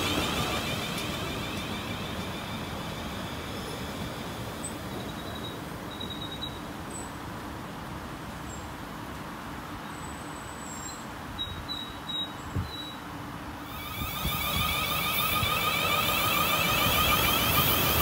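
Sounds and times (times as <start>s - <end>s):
train wheels rumbling: 0.0s - 6.2s, 13.7s - 18.0s
faint high whine: 13.6s - 18.0s.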